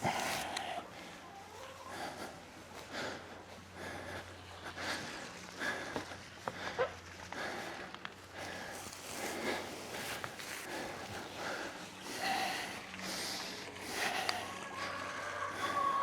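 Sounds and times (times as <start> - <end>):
hay bales rustling and scuffing: 8.4 - 12.0.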